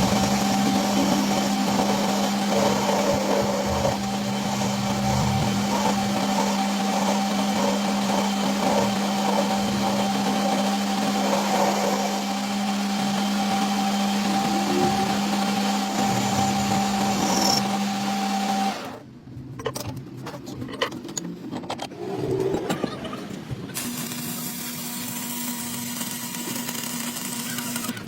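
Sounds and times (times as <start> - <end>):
machine motor humming: 0.0 - 19.0.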